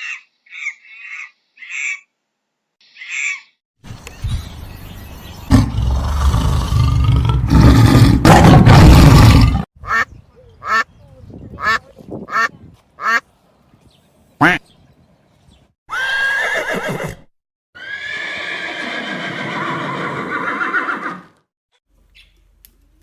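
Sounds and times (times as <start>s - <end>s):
duck quacking: 9.8s - 10.9s, 11.6s - 13.2s, 14.4s - 14.6s.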